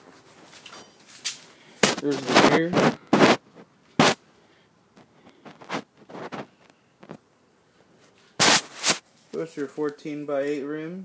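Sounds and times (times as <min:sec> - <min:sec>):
faint rustling and scraping: 0:00.0 - 0:04.2, 0:04.9 - 0:10.6
short scuffs: 0:00.6 - 0:03.4, 0:04.0 - 0:04.2, 0:08.4 - 0:09.4.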